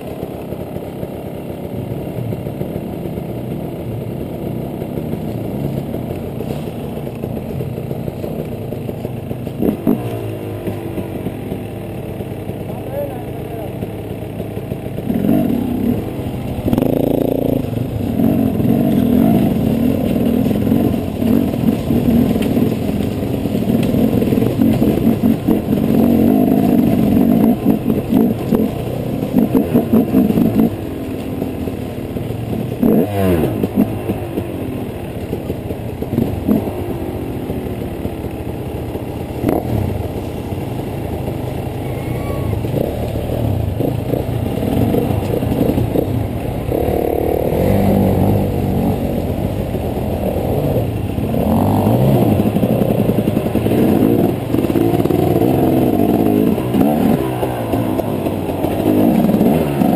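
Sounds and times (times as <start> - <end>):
motorcycle engine revving: 0.0 - 59.9
motorcycle clattering over stones: 3.3 - 12.8, 13.7 - 41.5, 42.6 - 59.9.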